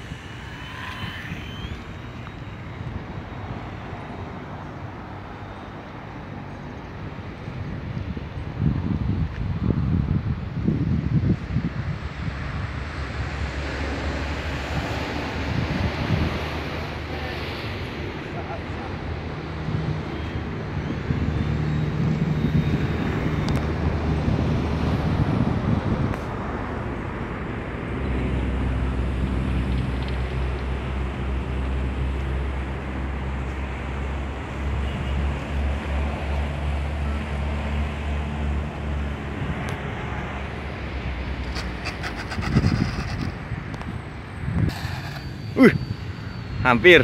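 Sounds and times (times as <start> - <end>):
rushing noise: 0.0 - 6.5, 39.4 - 47.0
engine droning: 0.0 - 7.6.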